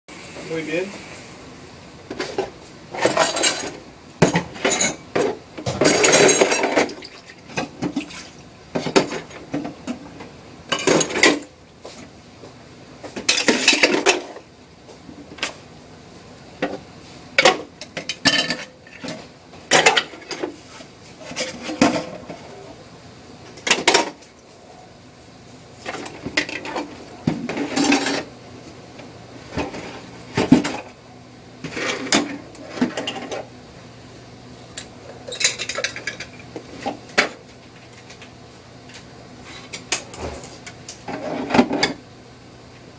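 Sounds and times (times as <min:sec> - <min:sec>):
dishes and cutlery clattering: 0:03.0 - 0:06.9, 0:27.5 - 0:28.3, 0:35.3 - 0:36.4.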